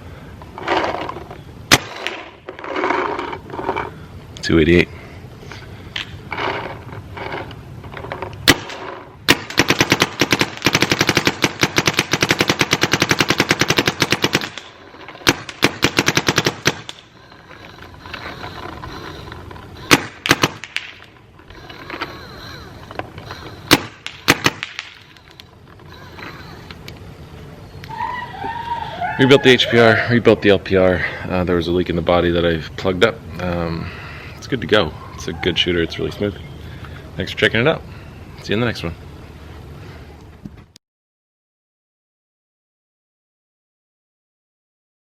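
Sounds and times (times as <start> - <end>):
paintball marker firing shots: 1.7 - 2.3, 8.4 - 17.1, 19.8 - 21.1, 23.4 - 25.1.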